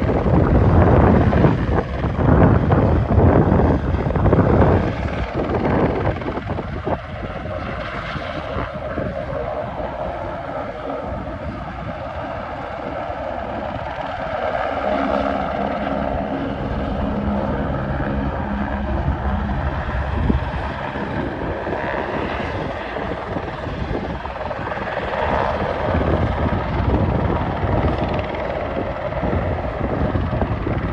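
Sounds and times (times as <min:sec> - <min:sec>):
helicopter rotor beating: 0:00.0 - 0:30.9.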